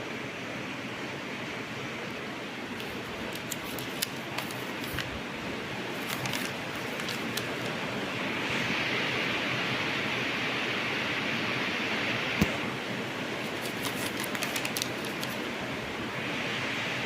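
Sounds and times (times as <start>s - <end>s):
ceiling fan air rush: 0.0s - 17.0s.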